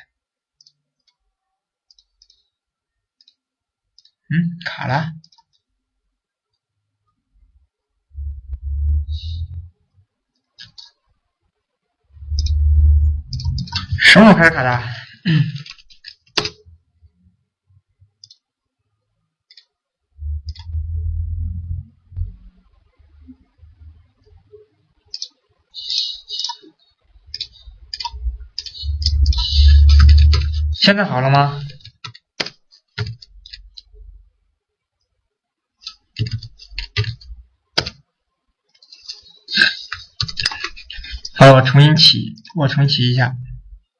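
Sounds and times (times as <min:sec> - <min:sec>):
computer mouse clicks: 0:03.2 - 0:03.4, 0:10.6 - 0:11.0, 0:12.3 - 0:12.6, 0:13.3 - 0:14.0, 0:15.6 - 0:16.6, 0:18.2 - 0:18.4, 0:19.5 - 0:19.7, 0:20.4 - 0:20.8, 0:25.1 - 0:26.7, 0:27.3 - 0:30.7, 0:35.8 - 0:38.0
low rumble: 0:08.1 - 0:09.7, 0:12.1 - 0:14.4, 0:20.2 - 0:24.3, 0:27.1 - 0:30.9.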